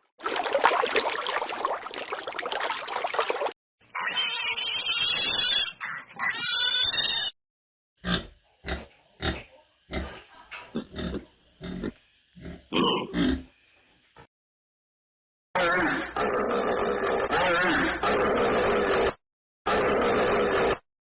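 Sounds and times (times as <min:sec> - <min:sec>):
high-pitched animal call: 0:03.9 - 0:07.4, 0:15.6 - 0:20.8.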